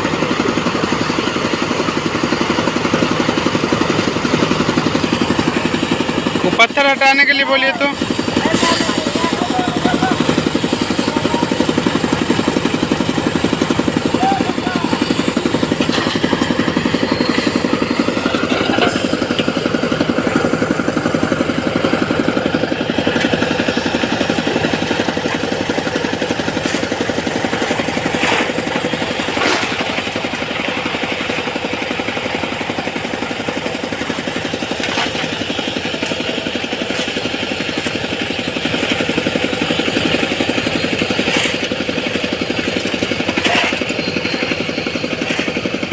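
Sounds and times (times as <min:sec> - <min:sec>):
engine running: 0:00.0 - 0:45.9.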